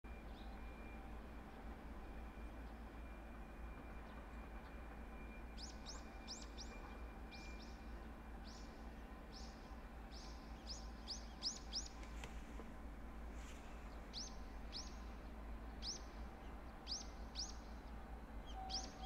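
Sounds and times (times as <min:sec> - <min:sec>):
low background rumble: 0:09.2 - 0:19.0
small bird chirping: 0:10.2 - 0:12.3, 0:13.6 - 0:15.1.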